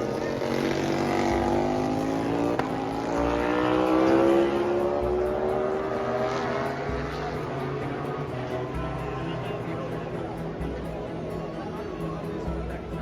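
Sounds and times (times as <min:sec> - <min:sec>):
motorcycle engine accelerating: 0:00.0 - 0:12.8.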